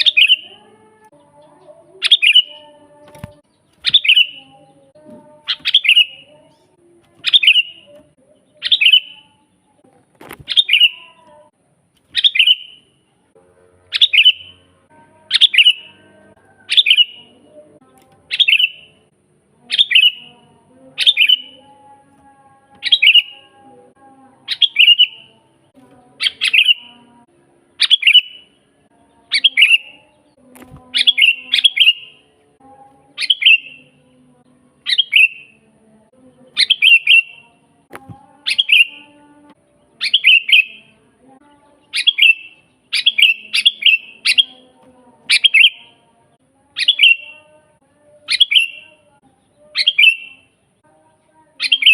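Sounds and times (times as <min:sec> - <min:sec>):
bird calling: 0:00.0 - 0:00.7, 0:02.0 - 0:04.6, 0:05.2 - 0:06.3, 0:07.2 - 0:07.9, 0:08.6 - 0:09.2, 0:10.2 - 0:11.2, 0:12.1 - 0:12.9, 0:13.9 - 0:14.6, 0:15.3 - 0:17.3, 0:18.3 - 0:18.9, 0:19.7 - 0:20.3, 0:21.0 - 0:21.6, 0:22.8 - 0:23.5, 0:24.5 - 0:25.3, 0:26.2 - 0:27.0, 0:27.8 - 0:28.5, 0:29.3 - 0:30.1, 0:30.8 - 0:32.2, 0:33.2 - 0:33.9, 0:34.8 - 0:35.5, 0:36.6 - 0:37.5, 0:38.4 - 0:39.1, 0:40.0 - 0:40.9, 0:41.9 - 0:44.7, 0:45.3 - 0:45.9, 0:46.8 - 0:47.4, 0:48.3 - 0:48.9, 0:49.7 - 0:50.4.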